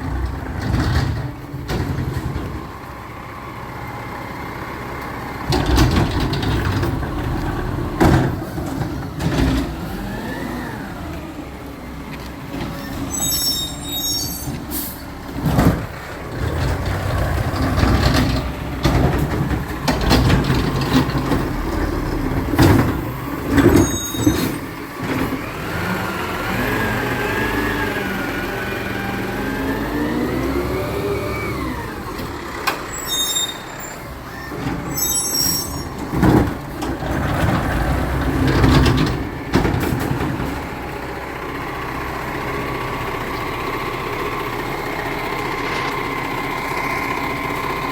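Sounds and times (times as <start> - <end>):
diesel engine running: 0.0 - 47.9
short high squeals: 12.8 - 15.0, 23.8 - 24.6, 32.9 - 36.0
metal clanks and bangs: 35.6 - 40.8.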